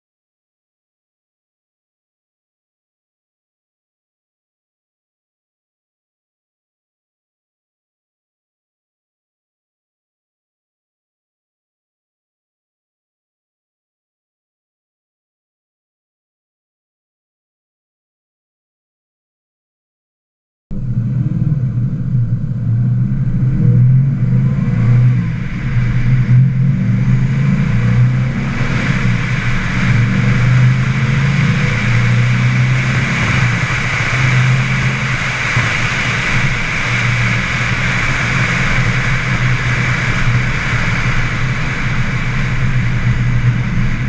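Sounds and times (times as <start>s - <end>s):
car engine running: 20.7s - 44.0s.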